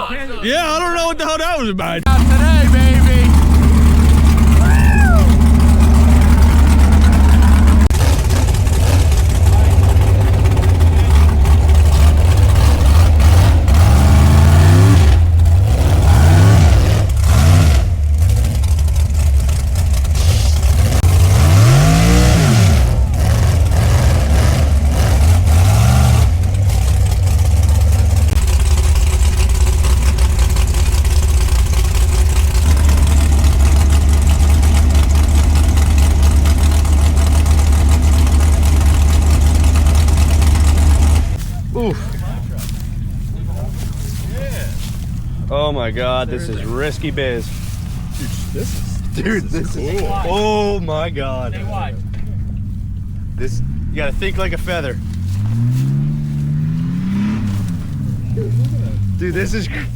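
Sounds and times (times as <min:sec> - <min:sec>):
truck engine revving: 0:00.0 - 0:59.9
knocks and clunks: 0:51.1 - 0:59.9.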